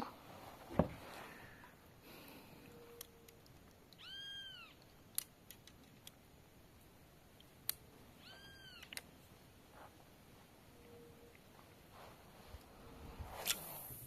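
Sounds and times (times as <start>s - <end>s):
faint animal cry: 4.0s - 4.8s, 8.2s - 8.9s
sharp clicks: 4.8s - 6.2s.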